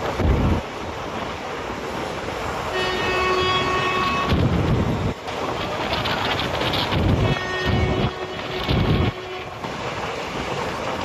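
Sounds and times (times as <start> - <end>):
moving passenger train rumbling: 0.0 - 11.0
train horn: 2.7 - 4.5, 7.1 - 9.6.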